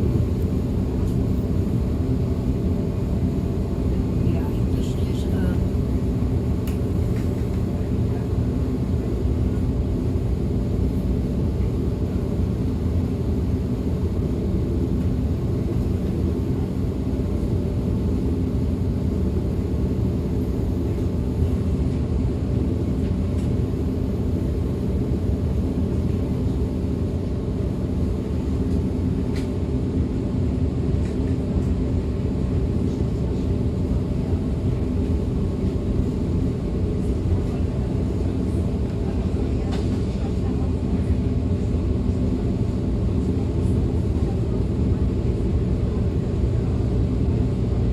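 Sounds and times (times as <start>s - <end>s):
train wheels rumbling on track: 32.8s - 47.9s.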